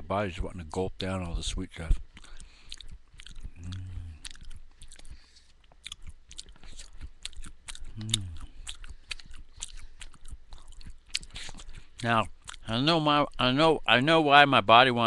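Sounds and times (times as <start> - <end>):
person chewing crunchy granola: 1.8 - 13.5
person humming briefly: 3.6 - 4.2, 7.9 - 8.5.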